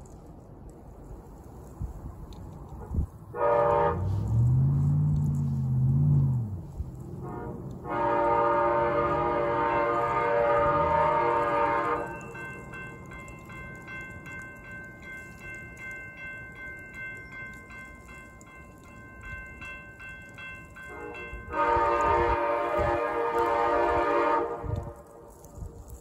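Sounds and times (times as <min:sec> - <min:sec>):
locomotive horn blast: 0:03.3 - 0:12.7, 0:20.9 - 0:25.3
railroad crossing bell ringing: 0:03.4 - 0:24.3.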